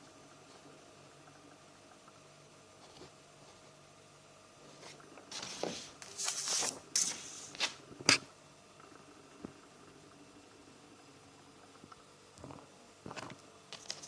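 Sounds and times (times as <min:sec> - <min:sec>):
paper pages turning: 0:05.3 - 0:07.8, 0:13.7 - 0:14.0.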